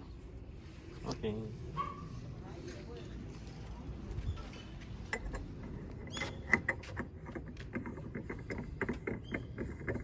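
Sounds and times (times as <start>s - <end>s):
hand tools clicking and tapping: 5.0s - 10.0s.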